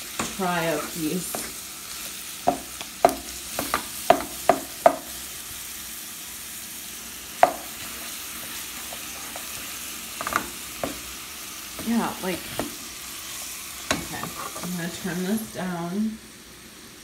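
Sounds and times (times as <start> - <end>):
vegetables sizzling in oil: 0.0 - 17.0
utensil knocking against pot: 2.5 - 5.1.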